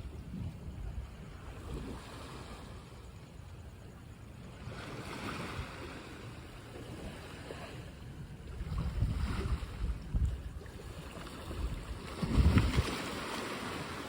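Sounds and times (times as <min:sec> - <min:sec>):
wind buffeting microphone: 0:00.0 - 0:02.7, 0:06.8 - 0:14.0.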